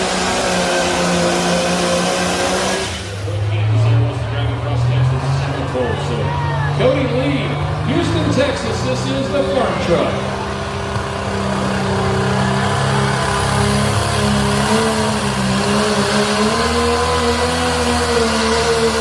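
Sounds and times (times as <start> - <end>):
truck diesel engine high revs: 0.0 - 19.0.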